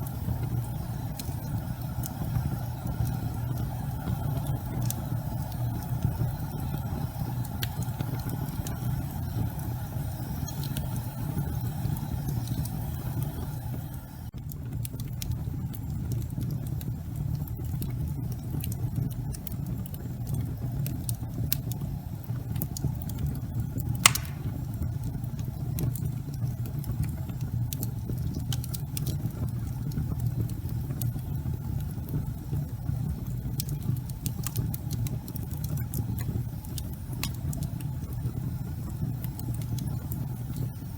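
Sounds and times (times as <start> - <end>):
wood fire crackling: 0.0 - 40.9
loud pop of fire: 24.0 - 24.9.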